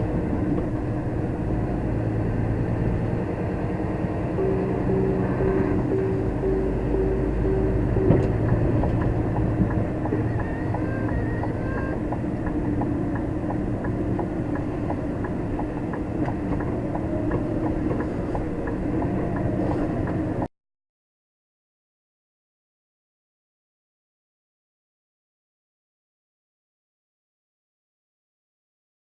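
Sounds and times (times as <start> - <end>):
truck engine droning: 0.0 - 20.5
light ticking: 4.4 - 20.4.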